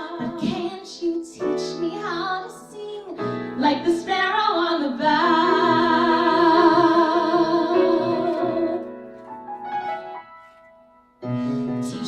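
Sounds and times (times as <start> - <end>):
women singing folk duet: 0.0 - 8.8
soft acoustic accompaniment: 0.0 - 12.0.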